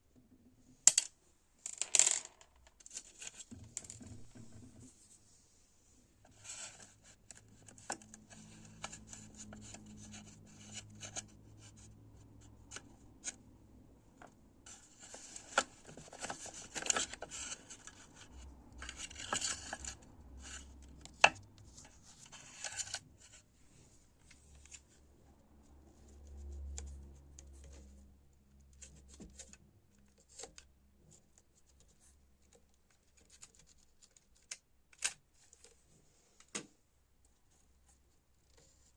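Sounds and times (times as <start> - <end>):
scraping and rubbing: 14.7 - 25.0.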